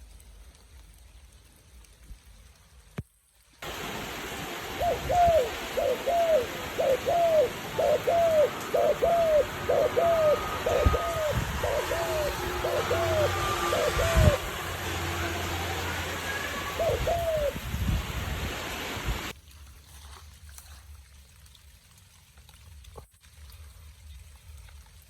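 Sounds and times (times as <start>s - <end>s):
background hiss: 0.0s - 19.3s
bird calling: 4.7s - 17.6s.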